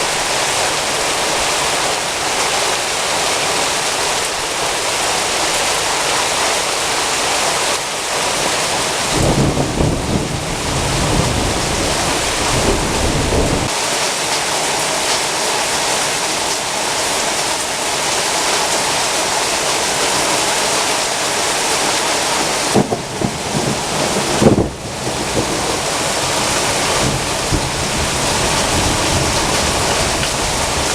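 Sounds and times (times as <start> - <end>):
heavy rain pouring: 0.0 - 30.9
low rumble of thunder: 9.0 - 13.7, 22.7 - 30.9.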